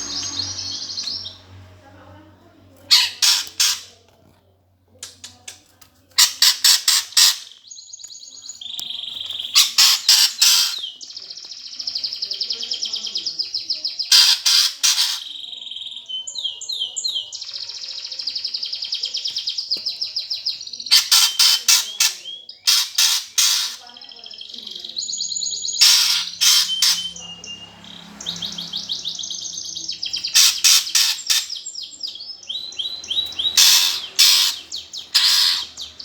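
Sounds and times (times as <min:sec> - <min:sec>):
sparrows chirping harshly: 0:00.0 - 0:04.1, 0:05.1 - 0:36.0
high buzzy bird trilling: 0:02.9 - 0:03.9, 0:09.4 - 0:10.9, 0:20.9 - 0:23.9, 0:25.0 - 0:31.7, 0:32.5 - 0:36.0.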